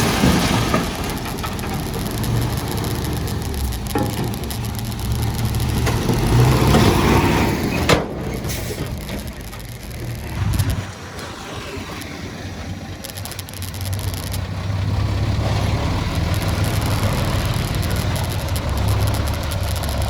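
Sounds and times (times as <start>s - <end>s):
diesel machinery engine running: 0.0s - 20.0s.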